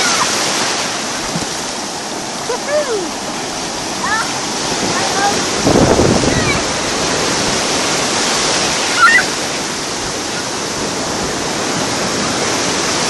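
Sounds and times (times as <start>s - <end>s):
ocean surf rushing: 0.0s - 13.0s
brief high-pitched cry: 9.0s - 9.3s.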